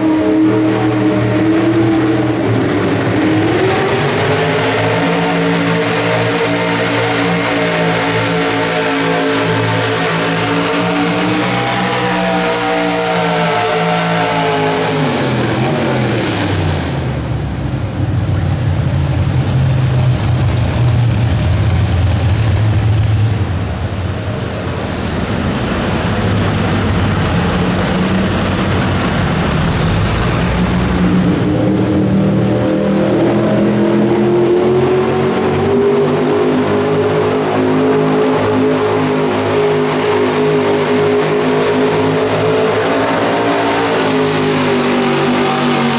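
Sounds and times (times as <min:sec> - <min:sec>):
truck engine rumble: 0:00.0 - 0:35.6.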